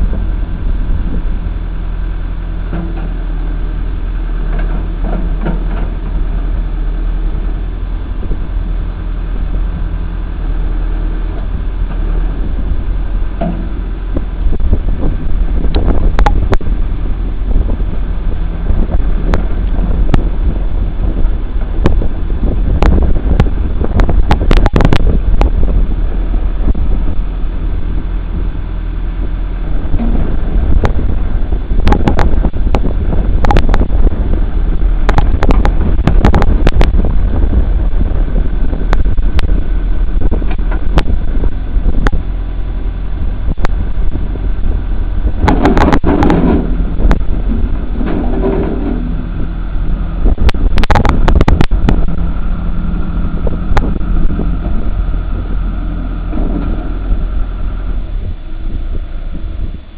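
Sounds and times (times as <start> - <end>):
backhoe engine running: 0.0 - 59.9
sharp knocks and clanks: 13.4 - 13.8, 45.4 - 49.3.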